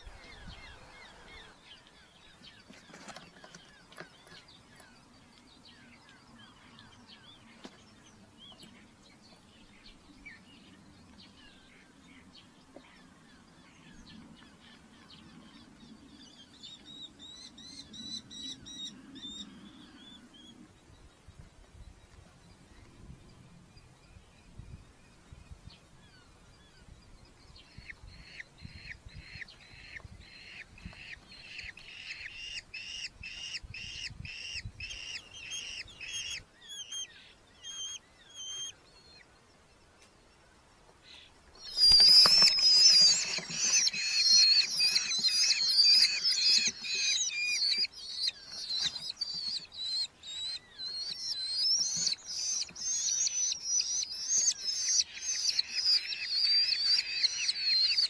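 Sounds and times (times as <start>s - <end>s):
shrill overlapping bird calls: 0.0s - 21.2s, 26.0s - 58.0s
falcons calling: 41.1s - 58.0s.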